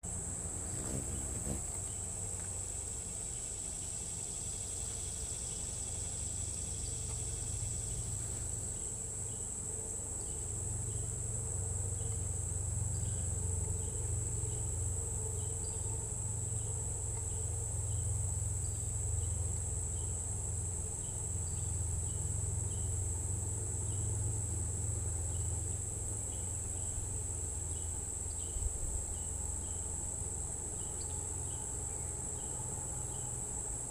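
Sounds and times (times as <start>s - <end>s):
crickets chirping: 0.0s - 33.9s.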